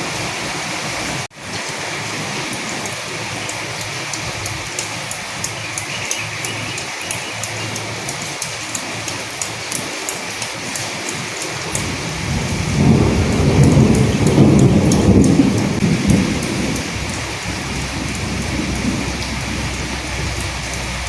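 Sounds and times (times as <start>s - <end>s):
raindrops ticking: 0.0s - 21.0s
steady rain: 0.0s - 21.0s
low roll of thunder: 11.6s - 21.0s.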